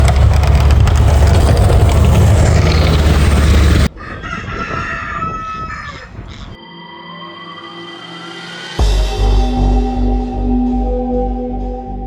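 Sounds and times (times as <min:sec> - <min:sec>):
loud low rumble: 0:00.0 - 0:04.0
rooster crowing: 0:03.8 - 0:06.6.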